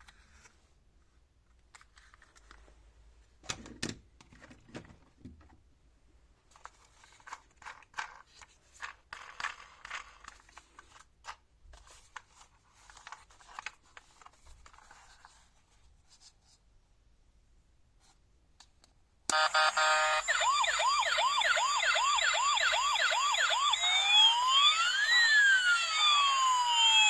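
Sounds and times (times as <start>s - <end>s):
plastic toy and packaging handled: 0.0s - 5.7s, 6.3s - 16.7s.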